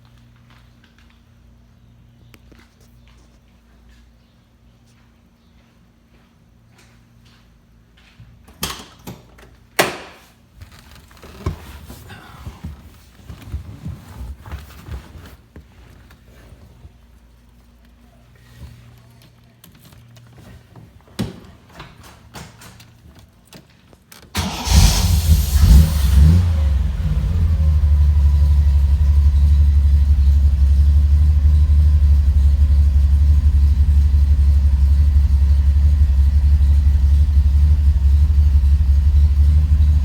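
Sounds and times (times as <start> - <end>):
car engine starting and idling: 24.4 - 40.0.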